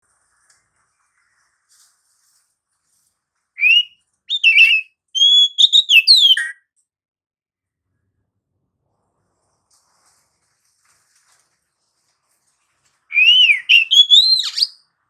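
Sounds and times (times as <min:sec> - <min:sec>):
bird singing whistled notes: 0:03.6 - 0:06.6, 0:13.1 - 0:14.8.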